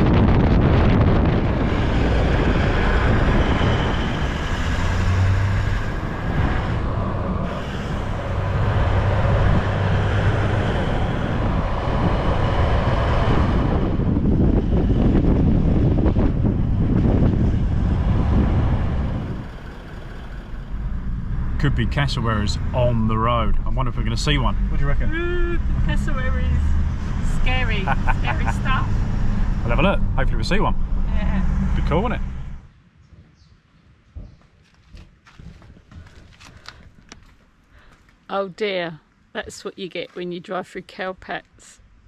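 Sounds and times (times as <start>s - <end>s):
engine drone: 0.0s - 32.7s
road and wind noise: 0.0s - 42.0s.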